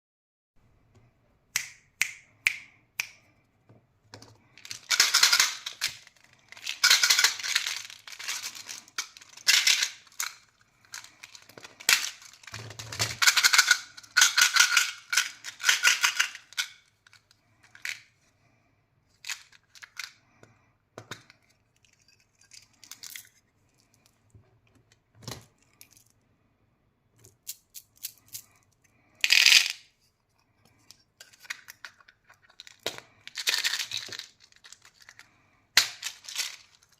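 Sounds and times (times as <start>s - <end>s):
plastic wrappers crinkling: 4.4s - 18.0s, 31.3s - 36.9s.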